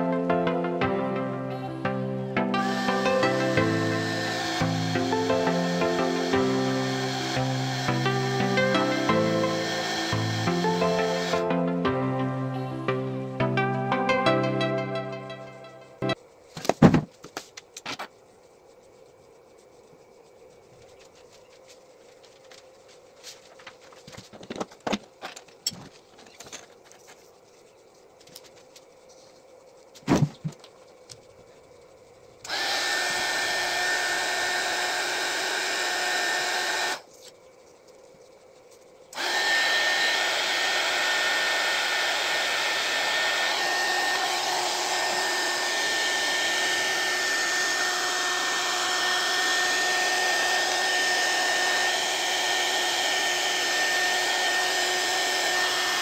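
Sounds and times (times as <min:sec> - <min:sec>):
hot air gun blowing with whine: 0:02.4 - 0:11.6, 0:32.4 - 0:37.1, 0:39.1 - 0:56.0.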